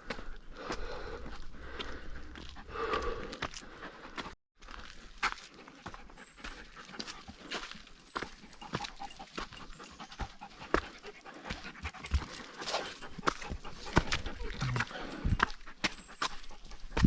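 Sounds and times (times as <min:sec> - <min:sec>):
footsteps on rock: 0:04.2 - 0:17.0
dog panting: 0:05.5 - 0:17.0.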